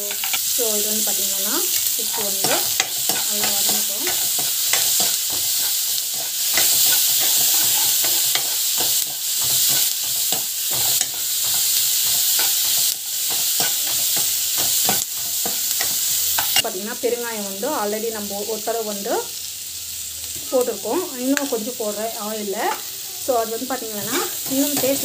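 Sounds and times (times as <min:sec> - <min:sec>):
onions sizzling in oil: 0:00.0 - 0:25.0
utensil clicking against pan: 0:01.7 - 0:16.6.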